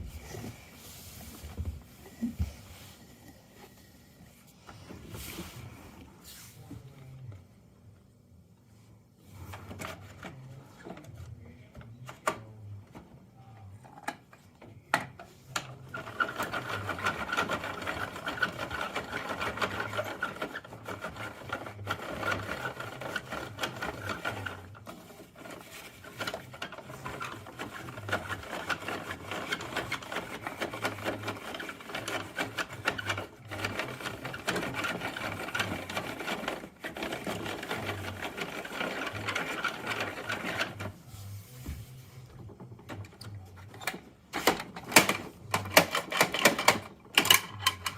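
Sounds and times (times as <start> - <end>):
toy truck mechanical rattling whir: 15.8 - 41.0
plastic toy clicks and knocks: 43.8 - 47.9.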